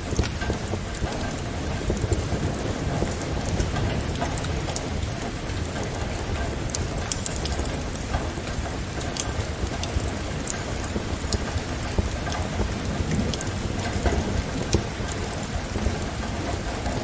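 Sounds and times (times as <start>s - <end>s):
steady rain: 0.0s - 17.0s
wood fire crackling: 0.0s - 17.0s.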